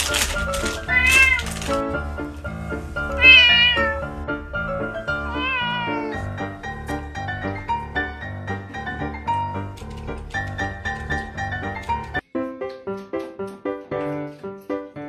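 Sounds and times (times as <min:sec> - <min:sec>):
background music: 0:00.0 - 0:15.0
cat meowing: 0:00.6 - 0:01.7, 0:03.0 - 0:06.7.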